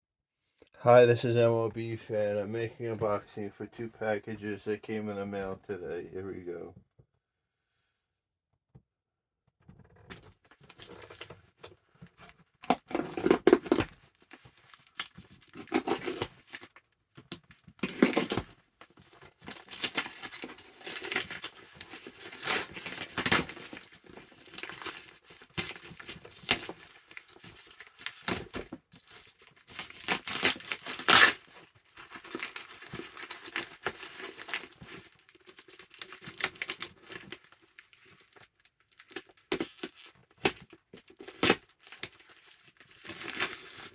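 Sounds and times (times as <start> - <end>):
package paper ripping and crinkling: 12.7 - 16.6, 19.5 - 43.9.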